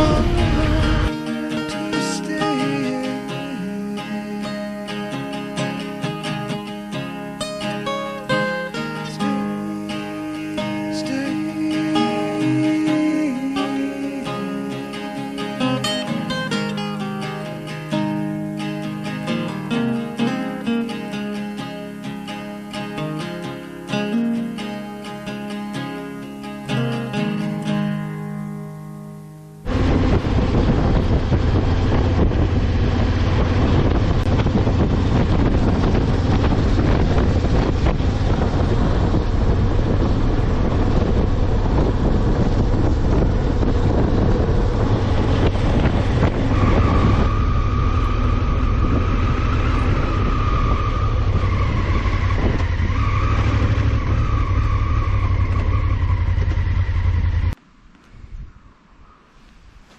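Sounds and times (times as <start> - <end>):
motorcycle engine at road speed: 0.0 - 1.5, 29.6 - 57.6
high steady whine: 0.0 - 59.6
wind rush over microphone: 29.7 - 59.9.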